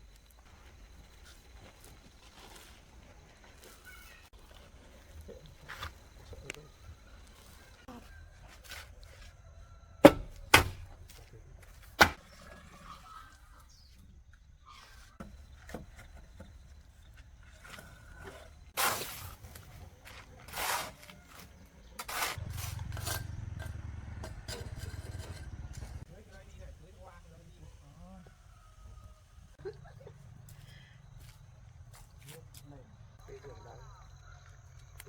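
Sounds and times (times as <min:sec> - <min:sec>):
sharp knocks: 0:10.0 - 0:11.2, 0:12.0 - 0:12.2.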